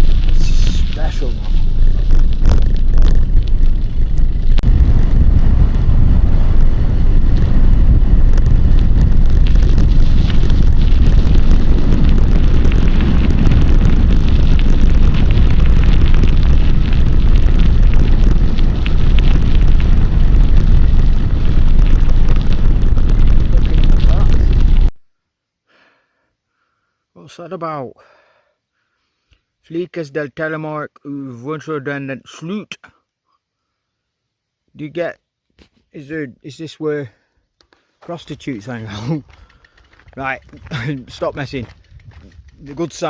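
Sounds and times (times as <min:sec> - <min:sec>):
wind buffeting microphone: 0:00.0 - 0:24.9, 0:39.1 - 0:43.0.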